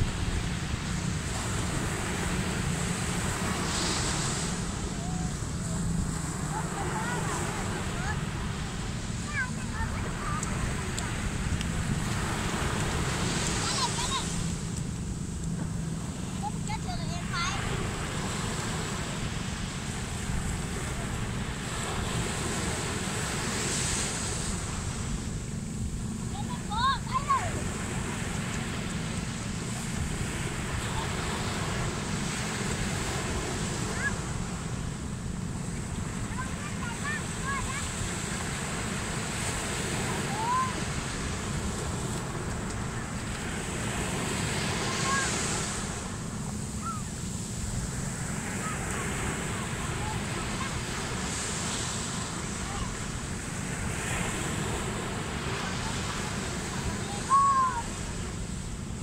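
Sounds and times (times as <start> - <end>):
ocean surf washing: 0.0 - 59.0
wind buffeting microphone: 0.0 - 59.0.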